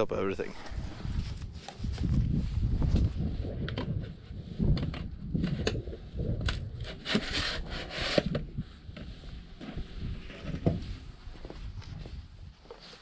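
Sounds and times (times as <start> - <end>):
scraping slide: 6.6 - 11.0.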